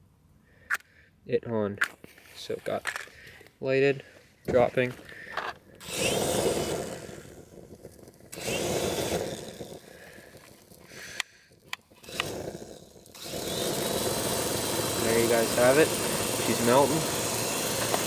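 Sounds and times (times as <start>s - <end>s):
fire rushing: 5.8s - 11.2s.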